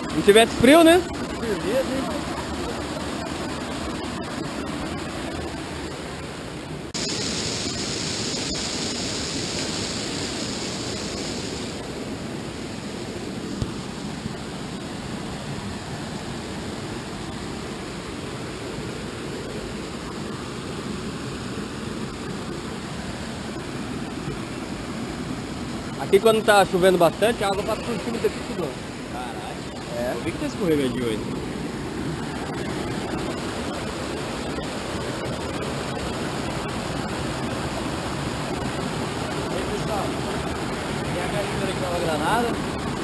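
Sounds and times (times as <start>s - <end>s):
flowing water rushing: 0.0s - 43.0s
bright water hiss: 6.9s - 13.1s, 26.0s - 34.1s.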